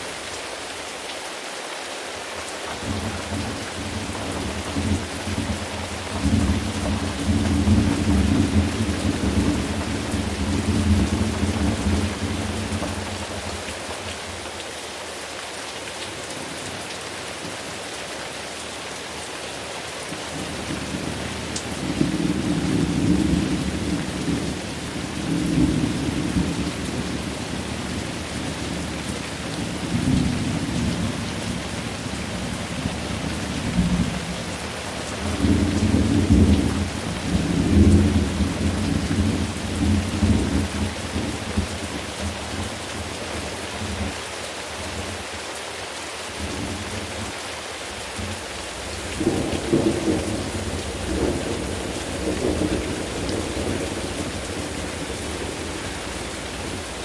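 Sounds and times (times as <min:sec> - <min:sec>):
steady rain: 0:00.0 - 0:57.0
rolling thunder: 0:48.7 - 0:57.0.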